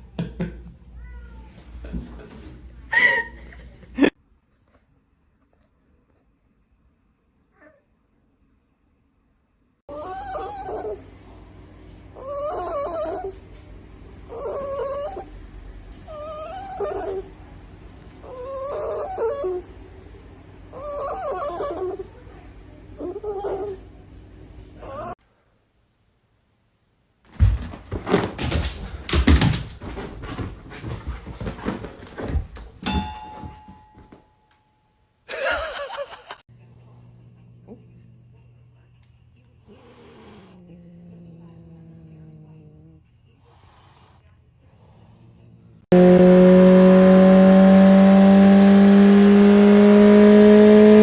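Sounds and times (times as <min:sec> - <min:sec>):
dog whining: 0:09.9 - 0:11.2, 0:12.2 - 0:13.4, 0:14.3 - 0:15.3, 0:16.1 - 0:17.3, 0:18.2 - 0:19.7, 0:20.7 - 0:22.1, 0:23.0 - 0:23.9, 0:24.8 - 0:25.2.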